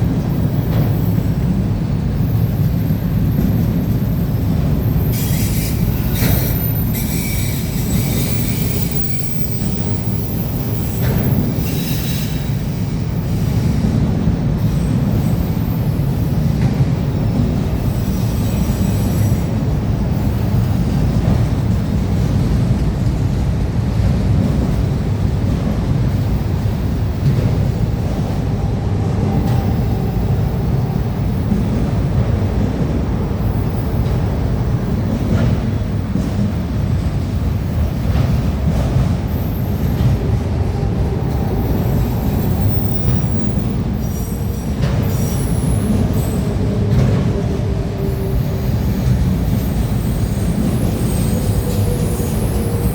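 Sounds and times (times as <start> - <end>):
freight train rumbling past: 0.0 - 52.9
train wheels squealing: 2.2 - 16.5, 17.2 - 21.0, 37.3 - 52.9.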